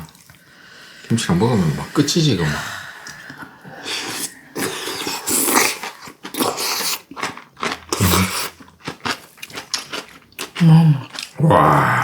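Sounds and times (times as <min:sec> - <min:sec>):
person chewing crunchy food: 0:03.1 - 0:11.8.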